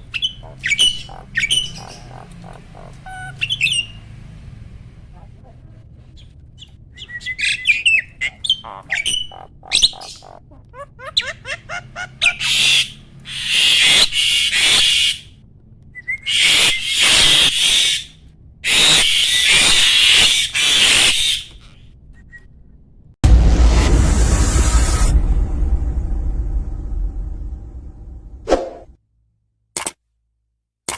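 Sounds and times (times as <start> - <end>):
bird whistles and chirps: 0.0 - 2.3, 3.1 - 4.0, 6.6 - 10.2, 12.2 - 15.3, 16.0 - 18.1, 18.7 - 21.6
harsh rasping bird calls: 0.0 - 4.1, 5.9 - 15.4, 16.0 - 22.5.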